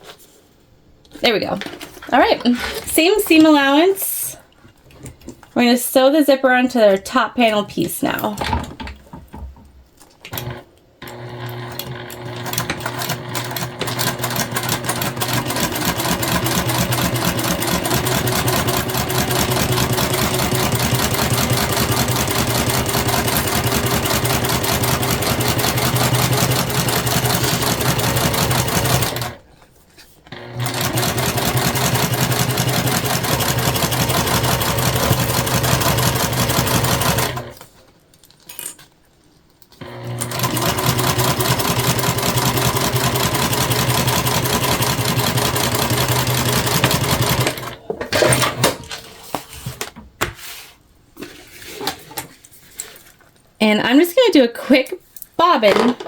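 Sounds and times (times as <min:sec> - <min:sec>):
sewing machine stitching: 0:10.3 - 0:29.4, 0:30.3 - 0:37.6, 0:39.8 - 0:48.8.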